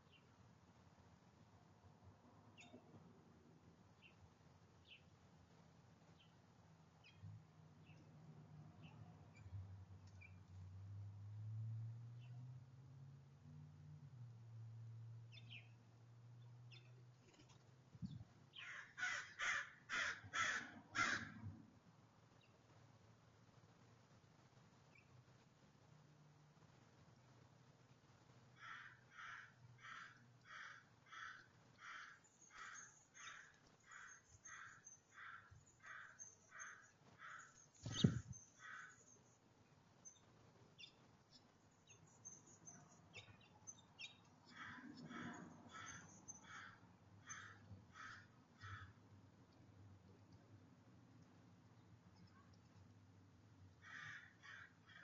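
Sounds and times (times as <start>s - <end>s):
crow cawing: 18.6s - 21.4s, 28.6s - 37.6s, 38.6s - 39.0s, 44.5s - 49.0s, 53.8s - 55.0s.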